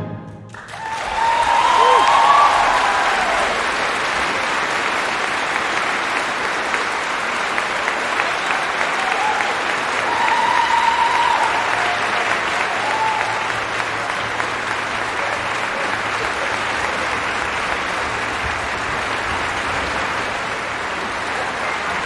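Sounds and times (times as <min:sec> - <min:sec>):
operatic music: 0:00.0 - 0:01.0, 0:09.8 - 0:22.0
audience applauding: 0:00.5 - 0:22.0.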